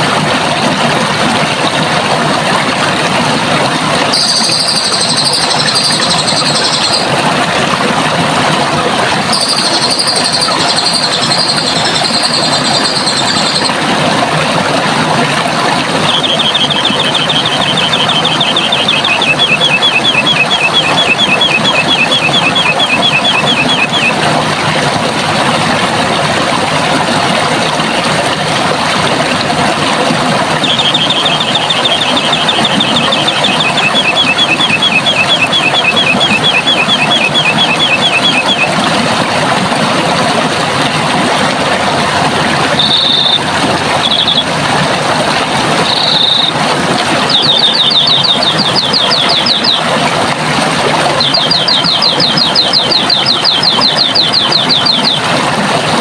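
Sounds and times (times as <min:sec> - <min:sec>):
water rushing: 0:00.0 - 0:56.0
small bird trilling: 0:04.2 - 0:07.1, 0:09.3 - 0:13.7.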